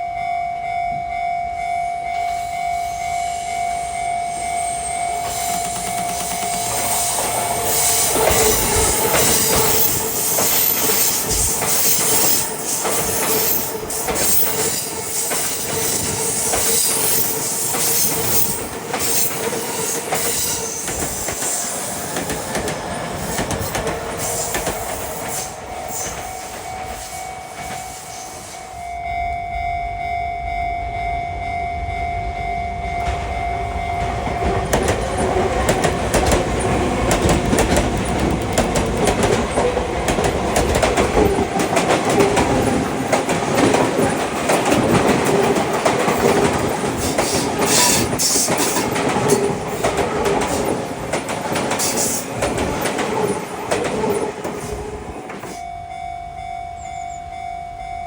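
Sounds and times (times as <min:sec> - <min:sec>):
electric trains passing: 0:00.0 - 0:58.0
wheels clattering over rail joints: 0:05.2 - 0:28.0, 0:34.0 - 0:55.6
wheel squeal: 0:47.0 - 0:49.5.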